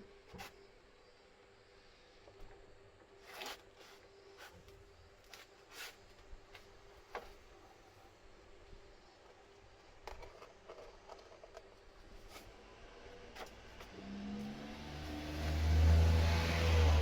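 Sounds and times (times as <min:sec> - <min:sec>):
vehicle engine hum: 0:12.6 - 0:17.0.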